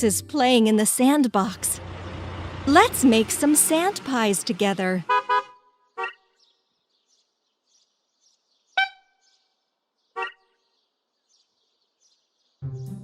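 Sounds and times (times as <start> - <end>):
cartoon car horn beeps: 5.0 - 6.2, 8.8 - 9.1.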